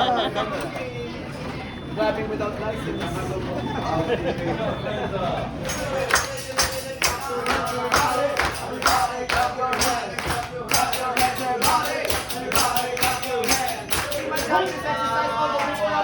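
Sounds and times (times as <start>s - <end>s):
music with percussive beat: 5.7s - 16.0s.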